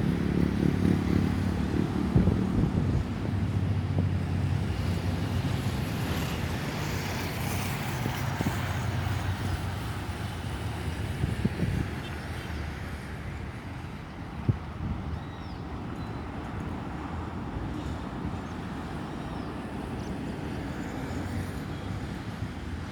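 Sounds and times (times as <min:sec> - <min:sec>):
wind on microphone: 0:00.0 - 0:16.0
jet engines of airliner: 0:00.0 - 0:22.9.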